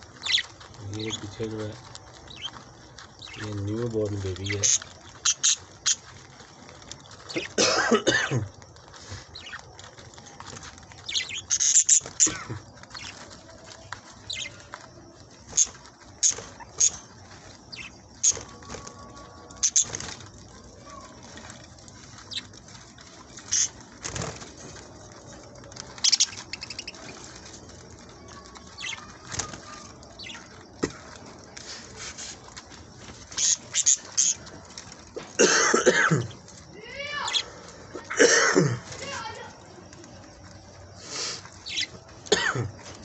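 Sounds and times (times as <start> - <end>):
budgerigars chirping: 0.2 - 6.1, 9.4 - 9.6, 11.0 - 13.3, 14.2 - 14.8, 15.5 - 18.4, 19.5 - 20.2, 23.4 - 24.3, 26.0 - 27.6, 30.2 - 30.5, 33.2 - 34.5, 41.1 - 42.0.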